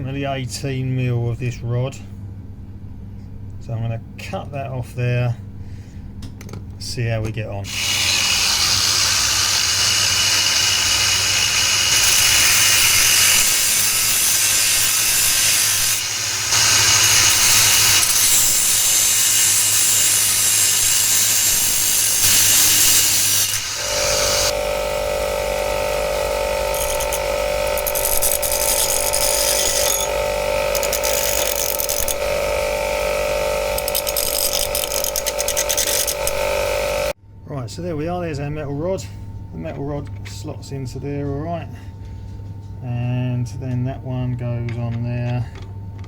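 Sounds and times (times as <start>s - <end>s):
power tool grinding steel: 7.7s - 37.2s
pitched whine with hum: 11.2s - 46.0s.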